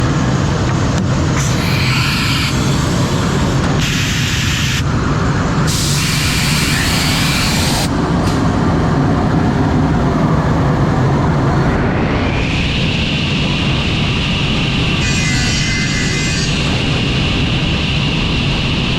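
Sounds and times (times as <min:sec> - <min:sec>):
cnc router machine noise: 0:00.0 - 0:08.2, 0:09.0 - 0:18.9
high-pitched spindle whine: 0:01.3 - 0:04.9, 0:05.7 - 0:07.9, 0:11.8 - 0:18.9
hissy cutting sound: 0:01.4 - 0:04.9, 0:05.7 - 0:07.9.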